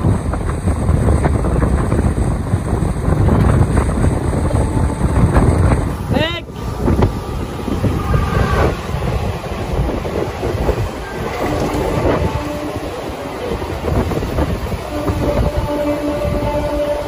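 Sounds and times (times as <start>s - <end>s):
train rumbling with clickety-clack: 0.0s - 17.0s.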